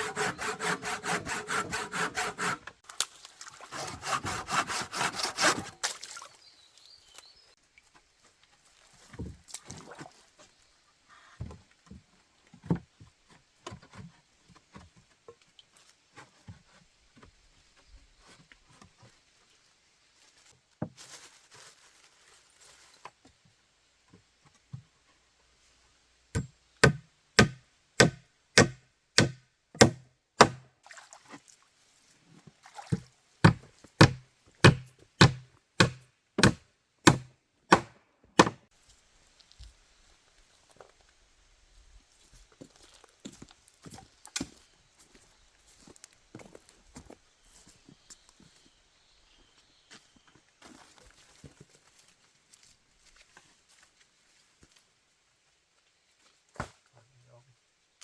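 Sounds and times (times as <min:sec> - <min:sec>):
sharp chopping strikes: 0:26.4 - 0:30.6, 0:33.5 - 0:38.6.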